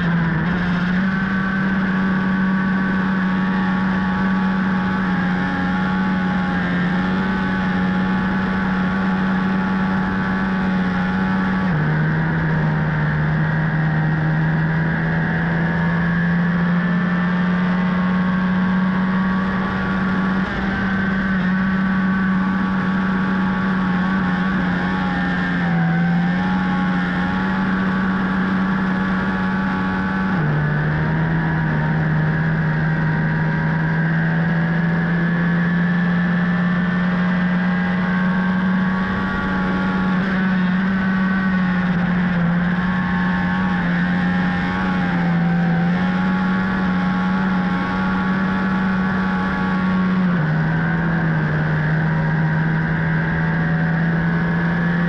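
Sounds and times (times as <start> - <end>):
motorcycle engine at high speed: 0.0 - 55.0
rush of wind noise: 17.6 - 34.4.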